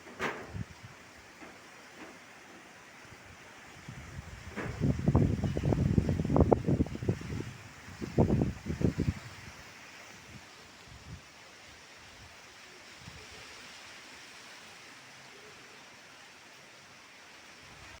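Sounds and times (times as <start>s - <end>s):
wind gusts on microphone: 0.0s - 1.2s, 3.1s - 13.8s
heavy rain falling: 0.0s - 9.2s.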